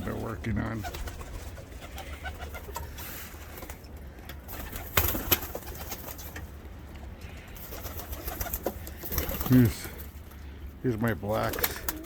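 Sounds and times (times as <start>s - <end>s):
pigeons cooing: 0.0s - 3.3s, 11.4s - 12.0s.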